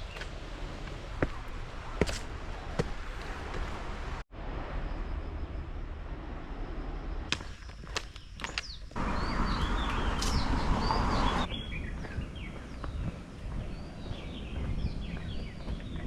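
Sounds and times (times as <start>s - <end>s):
footsteps on trail: 0.0s - 4.0s, 7.3s - 16.0s.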